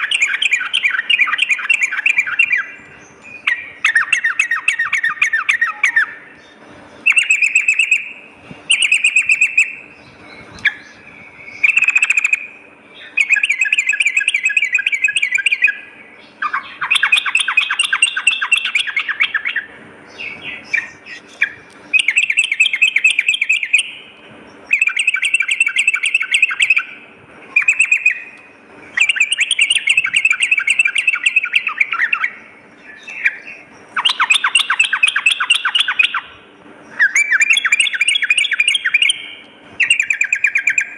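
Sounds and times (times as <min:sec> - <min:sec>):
bulbul singing chattering phrases: 0:00.0 - 0:40.9.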